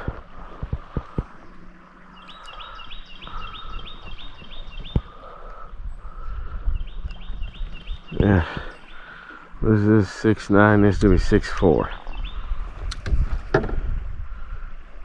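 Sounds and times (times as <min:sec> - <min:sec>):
bird chirping: 0:01.8 - 0:09.3, 0:11.8 - 0:12.6
sharp knocks: 0:13.0 - 0:13.9.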